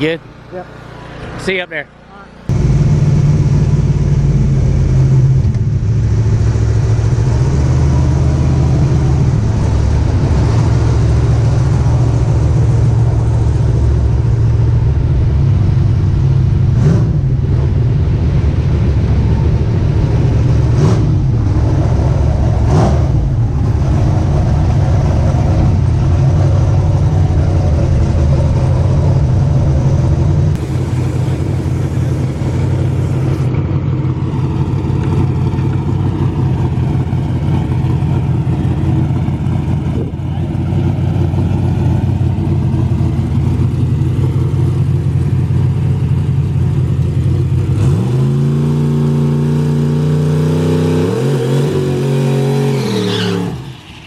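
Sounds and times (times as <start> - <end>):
car engine idling: 0.0 - 50.0.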